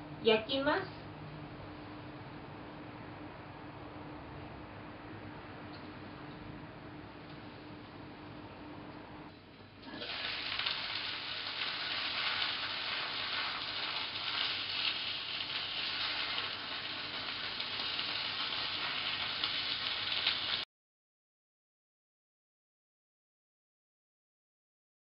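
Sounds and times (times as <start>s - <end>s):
food sizzling in a pan: 9.8s - 20.7s.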